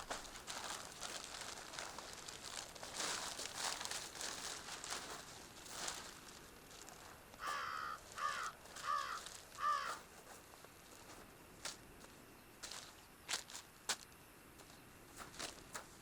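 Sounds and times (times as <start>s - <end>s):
rustling and crunching: 0.0s - 16.0s
crow cawing: 7.4s - 10.1s.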